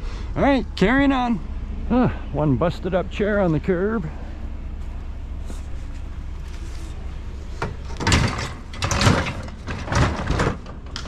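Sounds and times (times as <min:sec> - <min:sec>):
steady low hum: 0:00.0 - 0:11.0
metal chair scraping and clattering: 0:07.6 - 0:11.0.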